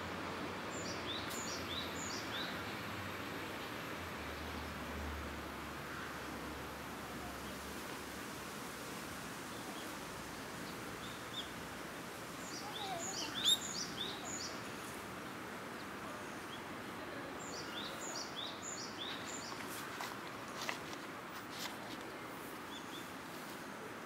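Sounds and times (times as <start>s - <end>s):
steady background noise: 0.0s - 24.0s
small birds chirping: 12.4s - 16.7s, 17.4s - 20.7s.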